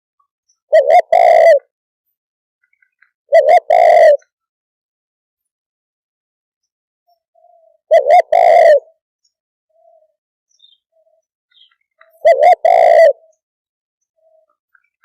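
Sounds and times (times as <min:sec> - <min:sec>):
dove cooing: 0:00.7 - 0:01.7, 0:03.3 - 0:04.3, 0:07.4 - 0:09.0, 0:12.0 - 0:13.4.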